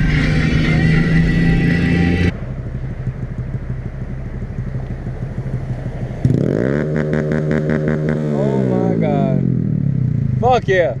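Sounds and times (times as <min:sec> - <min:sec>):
background music: 0:00.0 - 0:02.3
motorcycle engine idling and revving: 0:00.0 - 0:11.0.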